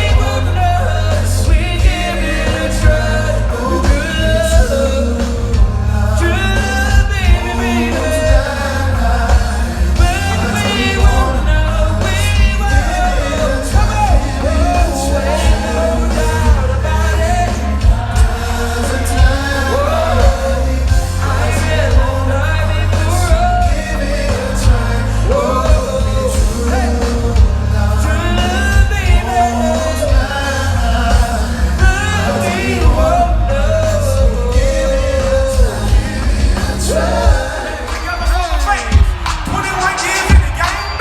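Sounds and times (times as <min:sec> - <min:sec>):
loud rnb music: 0:00.0 - 0:41.0
person singing: 0:00.0 - 0:41.0.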